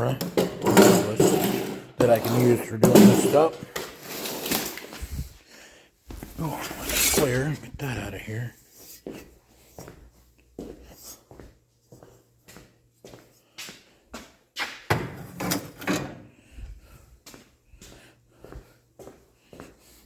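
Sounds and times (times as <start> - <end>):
objects knocking and clattering: 0.0 - 5.0.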